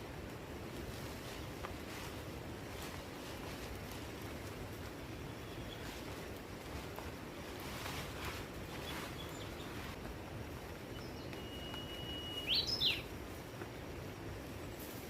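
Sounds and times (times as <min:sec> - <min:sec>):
background hiss: 0:00.0 - 0:15.0
bird calling: 0:10.9 - 0:13.1.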